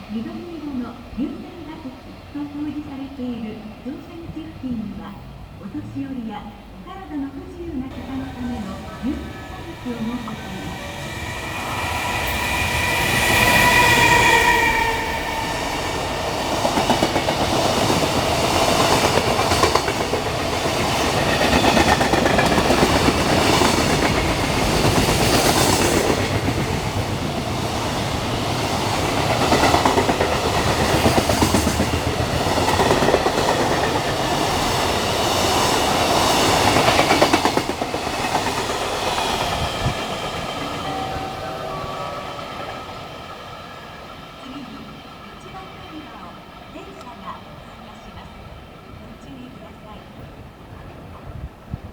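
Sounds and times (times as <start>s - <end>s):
steady whine: 7.8s - 18.3s, 39.1s - 45.8s.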